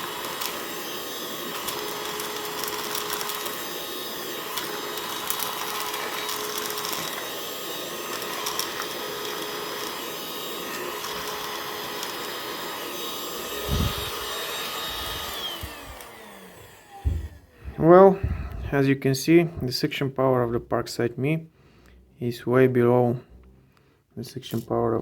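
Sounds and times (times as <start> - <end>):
handheld vacuum cleaner whine: 0.0 - 18.8
thump: 17.0 - 18.6.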